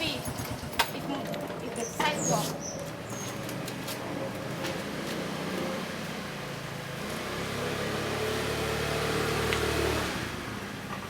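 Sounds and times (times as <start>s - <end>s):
street traffic: 0.0s - 11.0s
vehicle engine approaching: 2.7s - 11.0s.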